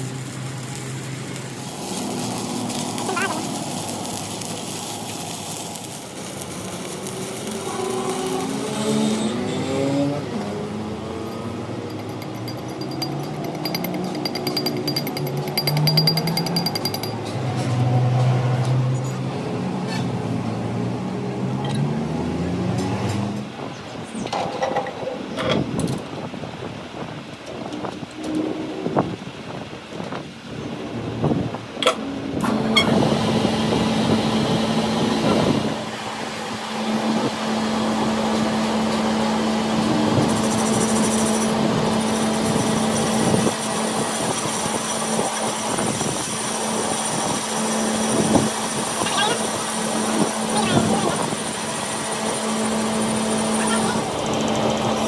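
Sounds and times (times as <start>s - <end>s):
workshop machine humming: 6.1s - 21.6s, 31.9s - 55.0s
power tool rattling on metal: 10.4s - 17.4s.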